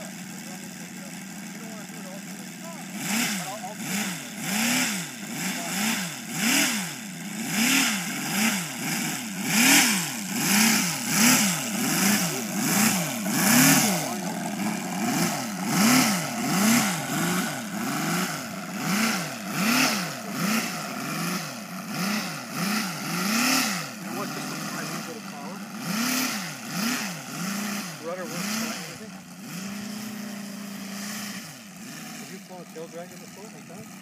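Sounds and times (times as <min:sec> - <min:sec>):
model radial engine running: 0:00.0 - 0:34.0.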